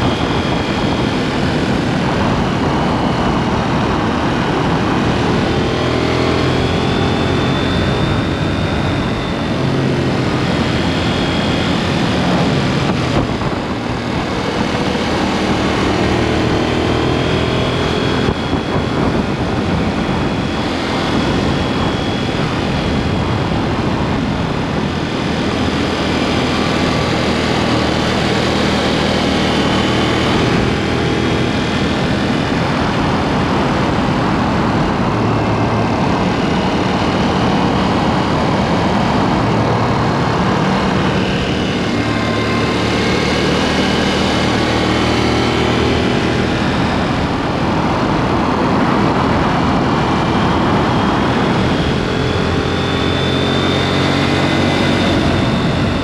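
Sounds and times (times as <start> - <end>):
motorcycle engine revving: 0.0 - 56.0
wind and road noise: 0.0 - 56.0.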